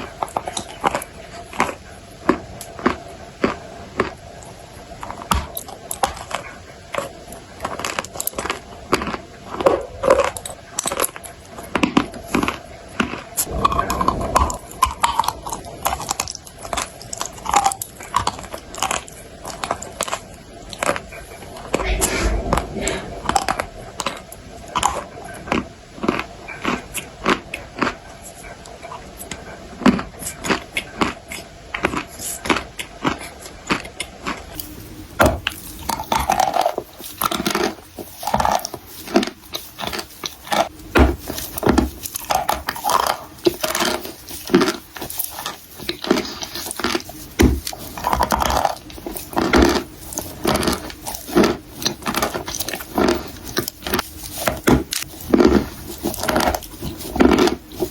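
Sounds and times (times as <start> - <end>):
chewing: 0.0 - 57.9
crunching dry clay: 31.8 - 57.9.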